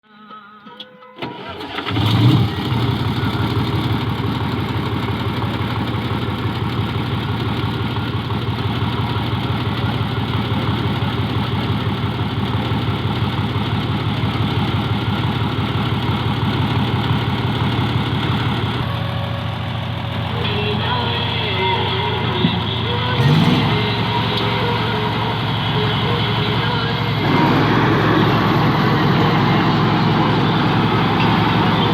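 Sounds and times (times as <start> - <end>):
bulldozer diesel engine idling: 1.6 - 31.9.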